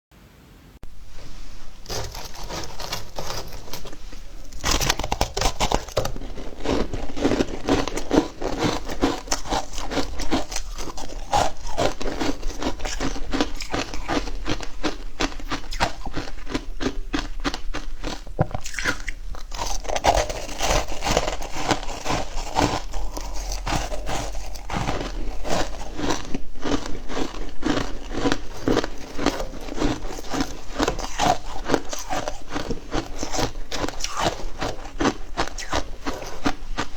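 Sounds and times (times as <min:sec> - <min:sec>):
ice crunching being chewed: 0:01.2 - 0:36.9.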